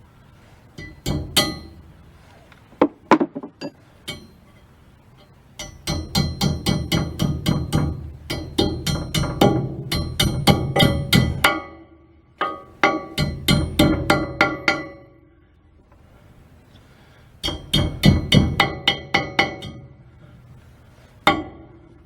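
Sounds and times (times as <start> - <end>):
hammer tapping on metal: 0.8 - 1.9, 2.8 - 15.2, 17.4 - 20.0, 21.2 - 22.0.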